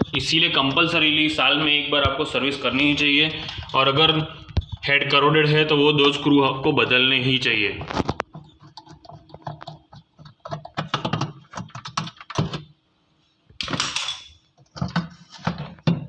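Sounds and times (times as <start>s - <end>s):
tool clicking and knocking on plastic: 8.0s - 12.7s.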